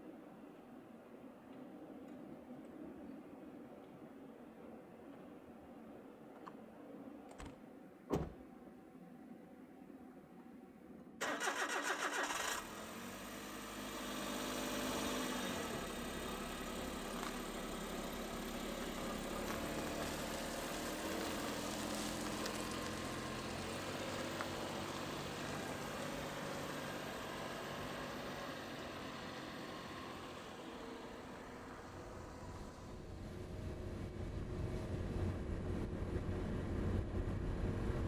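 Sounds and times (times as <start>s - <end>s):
truck engine starter cranking: 11.2s - 12.6s.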